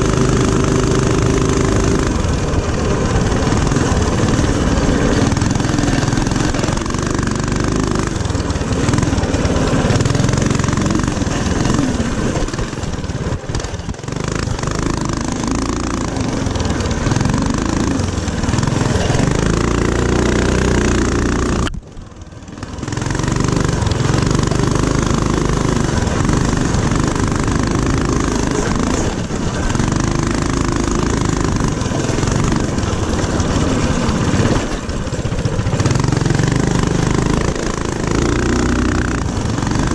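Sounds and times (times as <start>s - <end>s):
mini-bike engine revving: 0.0s - 39.9s.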